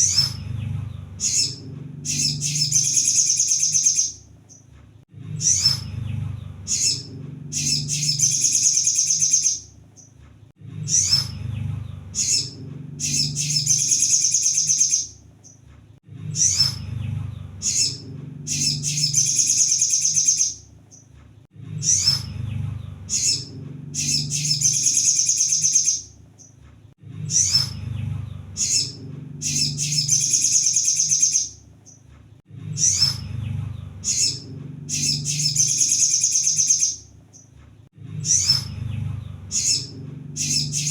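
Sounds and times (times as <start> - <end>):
bird call and rapid trill: 0.0 - 4.6, 5.3 - 10.1, 10.8 - 15.6, 16.3 - 21.0, 21.8 - 26.6, 27.2 - 32.0, 32.8 - 37.4, 38.2 - 40.9.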